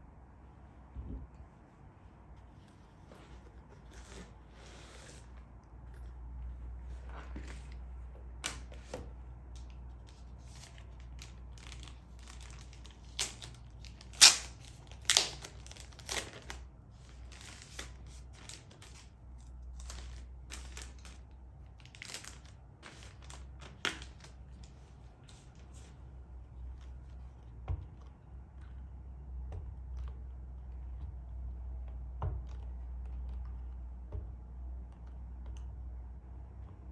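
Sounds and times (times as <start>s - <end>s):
packaging crinkling and tearing: 9.5s - 25.9s.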